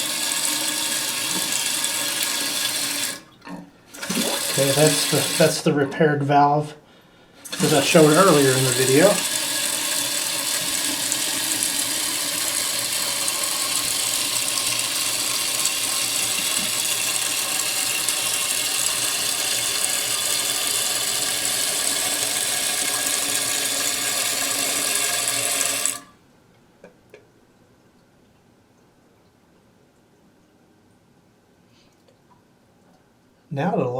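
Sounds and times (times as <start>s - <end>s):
water hissing through toilet valve: 0.0s - 5.8s, 7.4s - 26.1s.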